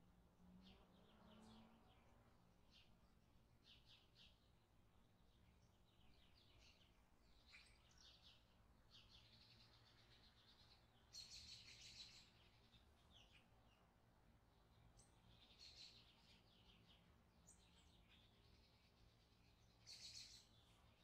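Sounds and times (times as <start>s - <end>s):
faint bird chirping: 0.6s - 21.0s
bird trill: 19.8s - 20.6s.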